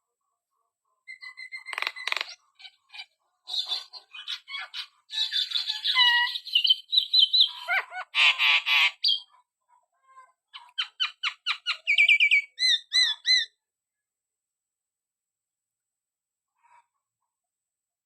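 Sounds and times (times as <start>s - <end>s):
bird singing varied notes: 1.1s - 7.8s, 10.6s - 13.6s.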